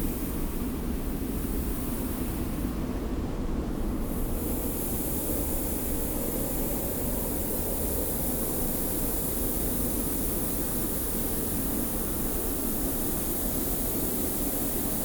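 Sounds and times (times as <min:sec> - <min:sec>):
hiss of blowing sand: 0:03.7 - 0:15.0.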